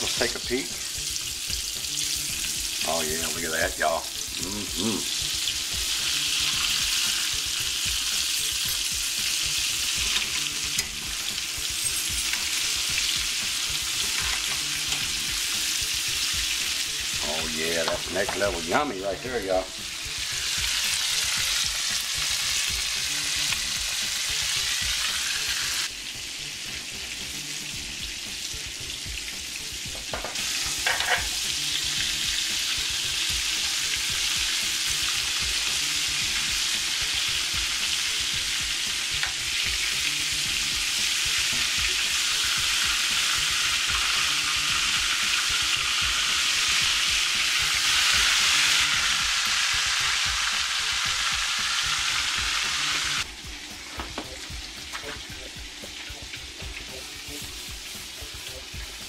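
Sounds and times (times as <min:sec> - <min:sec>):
chicken sizzling in hot oil: 0:00.0 - 0:59.0.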